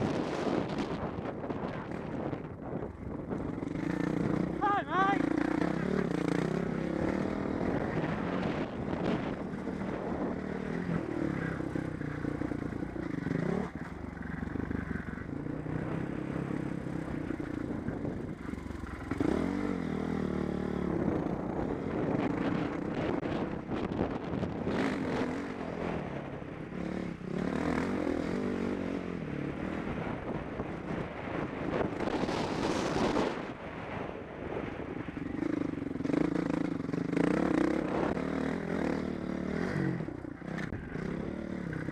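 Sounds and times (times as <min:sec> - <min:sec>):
wind rush: 0:00.0 - 0:12.8, 0:29.6 - 0:38.9
motocross bike engine revving: 0:03.3 - 0:23.6, 0:24.5 - 0:30.2, 0:35.3 - 0:41.9.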